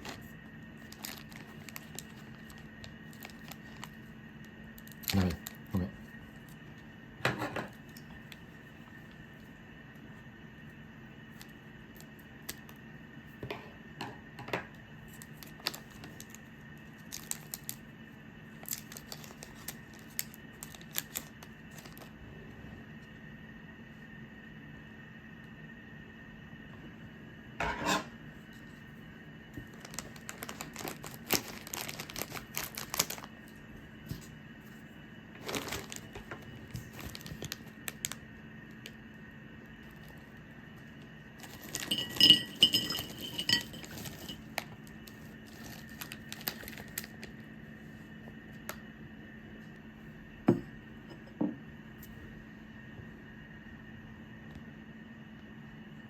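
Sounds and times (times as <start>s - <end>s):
faint hum: 0.0s - 56.0s
small hard objects clinking: 41.4s - 44.8s.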